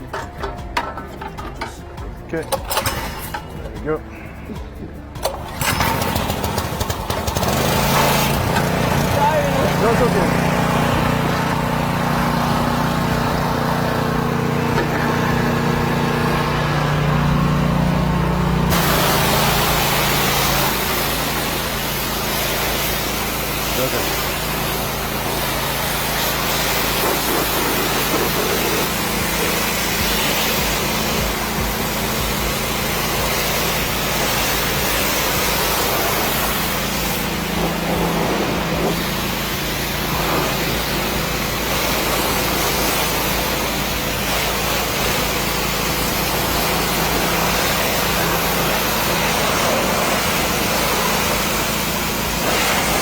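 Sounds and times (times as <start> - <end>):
washer motor humming: 0.0 - 53.0
pressure washer water jet hissing: 2.3 - 53.0.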